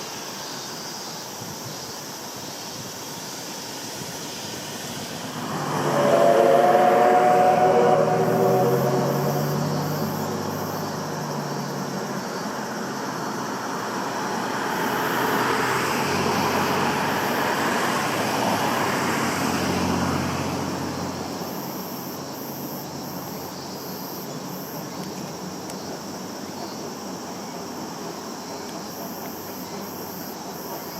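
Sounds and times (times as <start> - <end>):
insects chirping: 0.0 - 30.9
train wheels rumbling: 3.7 - 21.8.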